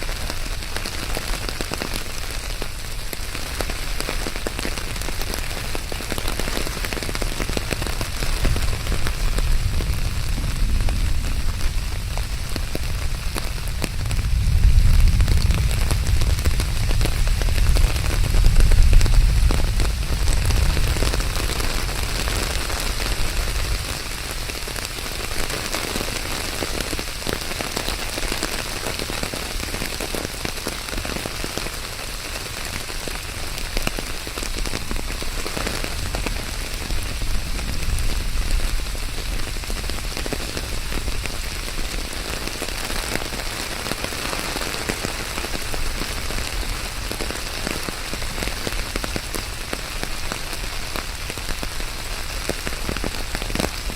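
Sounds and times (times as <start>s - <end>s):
rain on hard surfaces: 0.0s - 53.9s
deep low rumble: 7.2s - 24.8s, 34.7s - 41.9s.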